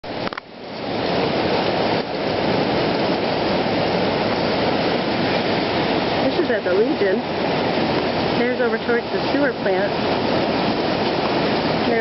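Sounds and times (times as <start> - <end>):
rushing floodwater: 0.0 - 12.0.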